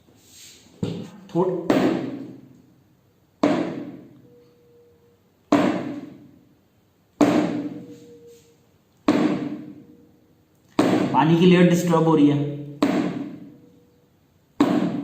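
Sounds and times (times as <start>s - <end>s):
tuning fork ringing tone: 4.1s - 5.3s, 7.7s - 8.6s.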